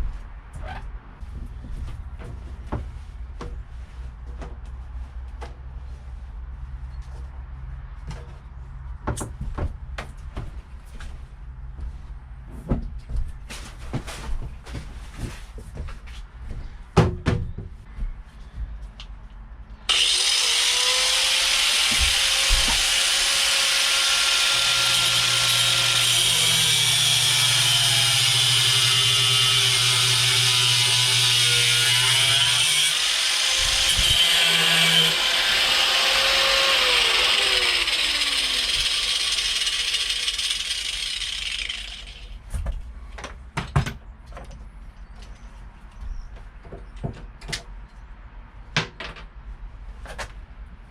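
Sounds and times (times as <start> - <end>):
angle grinder cutting metal: 19.9 - 42.3.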